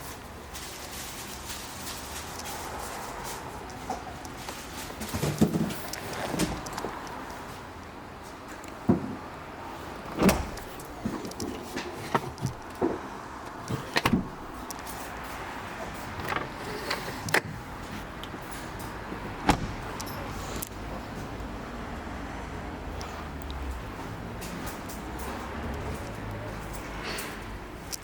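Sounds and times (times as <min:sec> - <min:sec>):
car doors clicking and knocking: 0:10.0 - 0:14.8, 0:16.1 - 0:17.7, 0:19.2 - 0:20.3.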